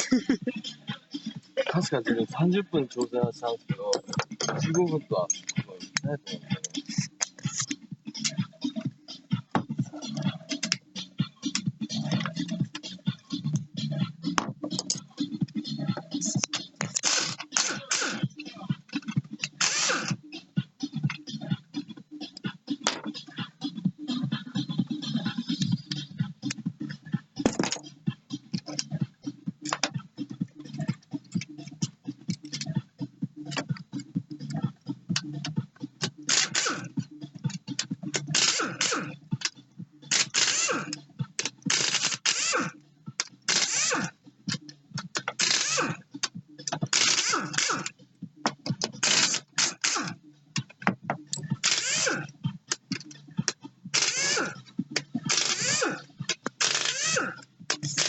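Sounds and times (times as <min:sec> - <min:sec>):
voices talking: 0:00.0 - 0:07.6
metallic clicks of hand tools: 0:16.2 - 0:18.2, 0:36.0 - 0:36.8, 0:37.5 - 0:47.9, 0:48.5 - 0:58.0.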